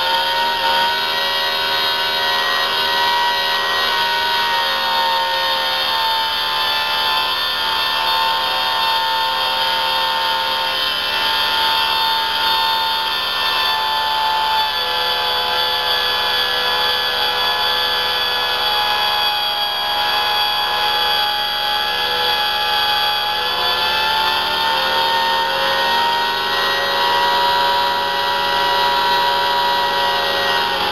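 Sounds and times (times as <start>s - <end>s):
model turbine whine: 0.0s - 30.9s.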